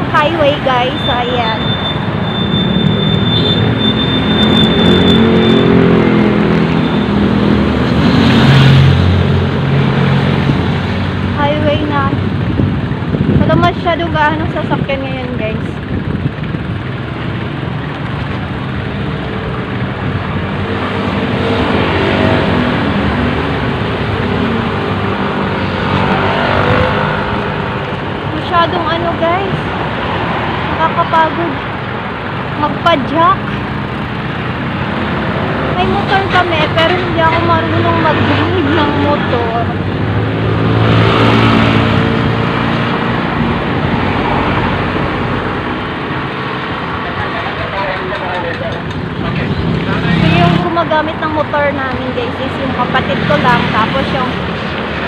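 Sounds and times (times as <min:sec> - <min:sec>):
highway traffic road noise: 0:00.0 - 0:55.0
vehicle engine passing by: 0:33.4 - 0:55.0.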